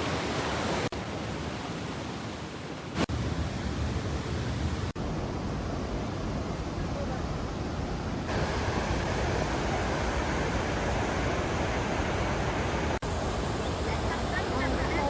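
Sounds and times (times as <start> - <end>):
waterfall rushing: 8.3 - 15.0.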